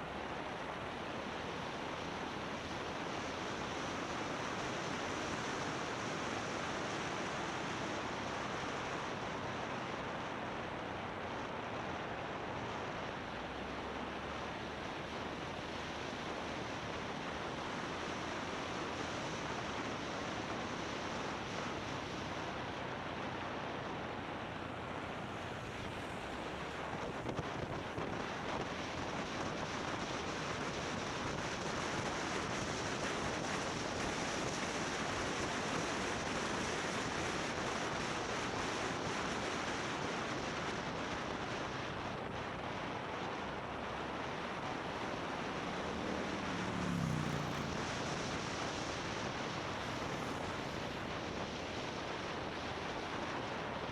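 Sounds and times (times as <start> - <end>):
motorbike road and engine noise: 0.0 - 53.9.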